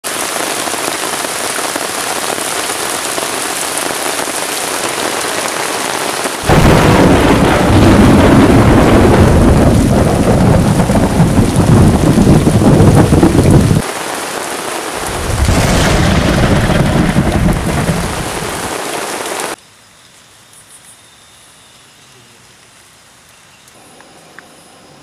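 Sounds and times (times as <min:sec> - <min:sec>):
heavy rain on a tarp: 0:00.0 - 0:19.6.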